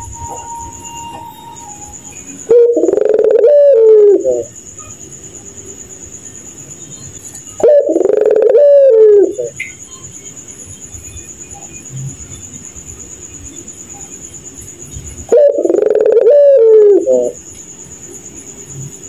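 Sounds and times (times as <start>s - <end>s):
dove cooing: 0.0s - 4.5s, 7.6s - 9.6s, 15.3s - 17.4s
cricket trilling: 0.0s - 19.0s.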